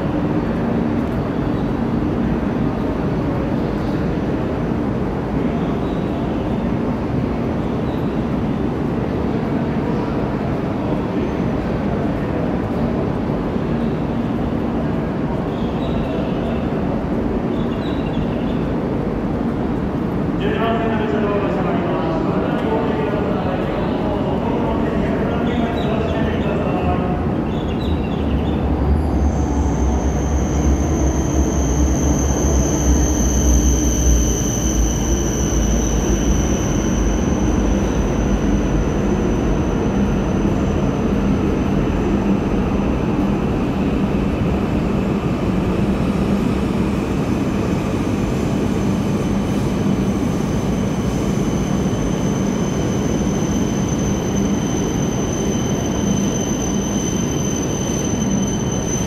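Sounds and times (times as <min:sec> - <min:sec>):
train mechanical hum: 0:00.0 - 0:59.0
high-pitched whine: 0:29.2 - 0:59.0.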